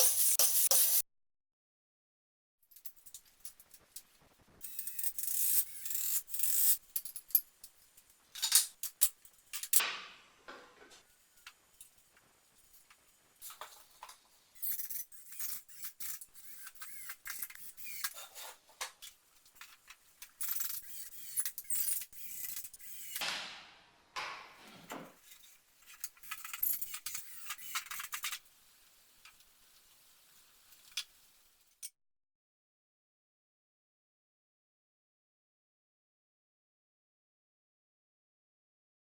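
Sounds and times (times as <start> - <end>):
metal tools clinking and rattling: 4.6 - 9.8, 24.9 - 28.4.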